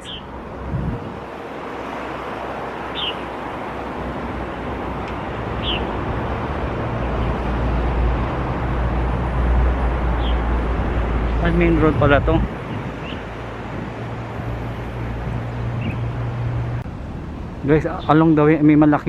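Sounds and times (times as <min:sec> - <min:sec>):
high bird chirps: 0:00.0 - 0:00.3, 0:02.9 - 0:03.2, 0:05.6 - 0:05.9
vehicle engine and tyre rumble: 0:00.0 - 0:19.0.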